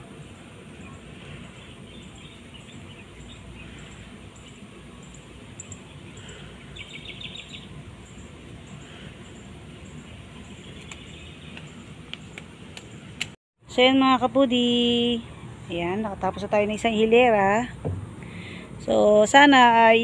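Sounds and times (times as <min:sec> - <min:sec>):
outdoor background noise: 0:00.0 - 0:20.0
small bird chirping: 0:00.7 - 0:13.1.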